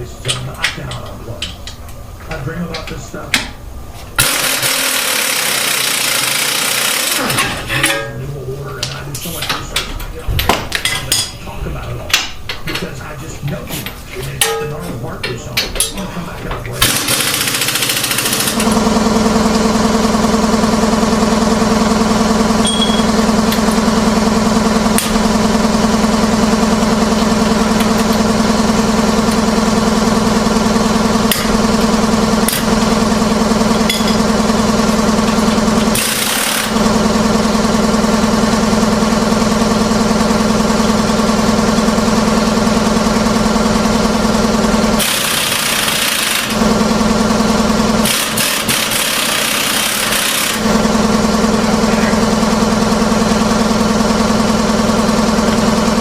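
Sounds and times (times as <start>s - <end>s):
loud machine drone: 4.2s - 10.4s, 14.2s - 56.0s.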